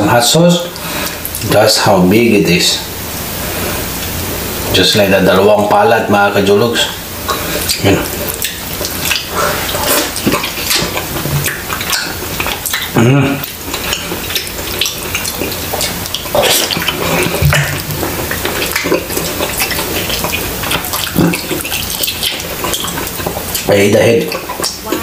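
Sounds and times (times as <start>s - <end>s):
man chewing wetly: 0.7s - 1.5s, 7.0s - 25.0s
mouth smacking clicks: 7.3s - 25.0s.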